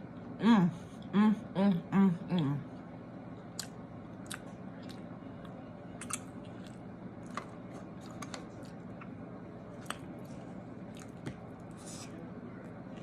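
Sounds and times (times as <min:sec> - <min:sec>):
person chewing food: 0:03.5 - 0:12.0.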